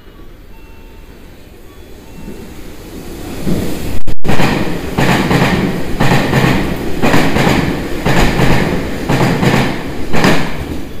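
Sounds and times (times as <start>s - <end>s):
train rumble: 0.0s - 11.0s
wheels clacking over rail joints: 4.3s - 11.0s.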